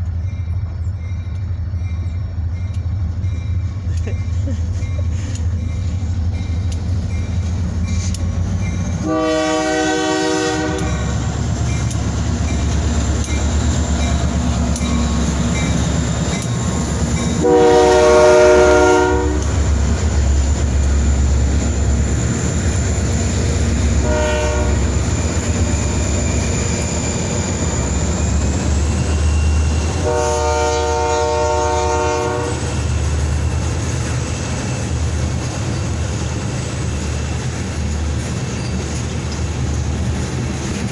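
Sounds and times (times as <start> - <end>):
diesel engines rumbling: 0.0 - 40.9
train chime air horn: 9.0 - 11.3, 17.2 - 19.6, 23.9 - 25.9, 29.7 - 32.9.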